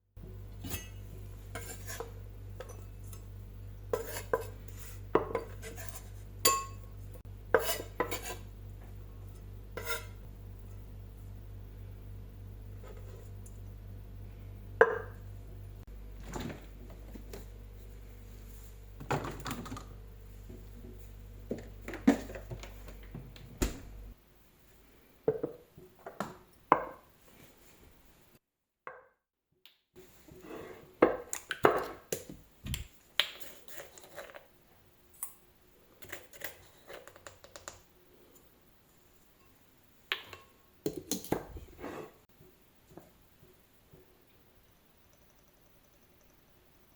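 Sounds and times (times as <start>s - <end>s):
steady low hum: 0.0s - 25.1s.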